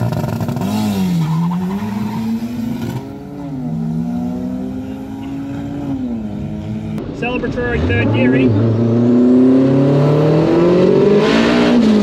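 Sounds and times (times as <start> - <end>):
car engine revving hard: 7.6 - 12.0.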